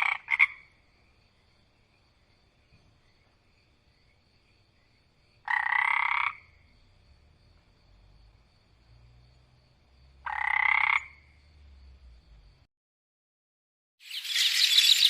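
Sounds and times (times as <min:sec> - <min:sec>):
frog croaking: 0:00.0 - 0:00.8, 0:05.4 - 0:06.7, 0:10.2 - 0:11.4.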